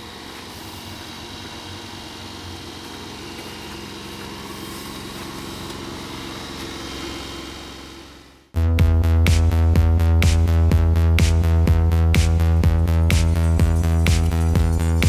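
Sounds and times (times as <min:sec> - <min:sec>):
small engine idling: 0:12.5 - 0:15.0.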